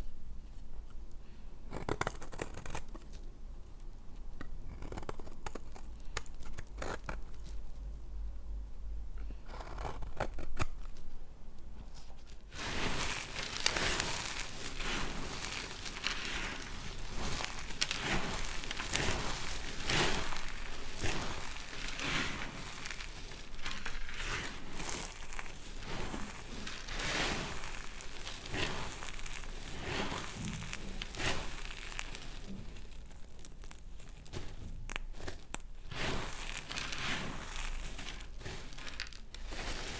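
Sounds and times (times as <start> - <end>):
knife cutting dry soap: 9.2 - 11.0, 12.0 - 39.9.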